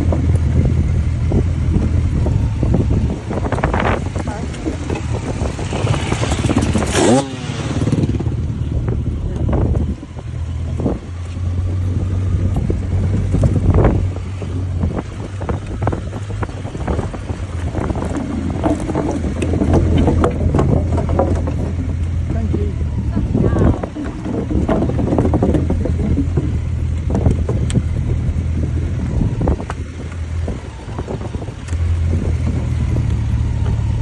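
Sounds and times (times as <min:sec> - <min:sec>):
motorcycle engine running: 0:00.0 - 0:34.0
short knocks and clatters: 0:15.3 - 0:22.8.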